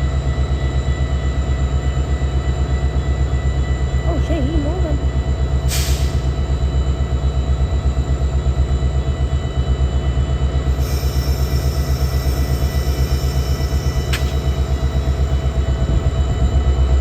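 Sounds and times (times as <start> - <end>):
train rumbling by: 0.0 - 17.0
short click: 14.1 - 14.4.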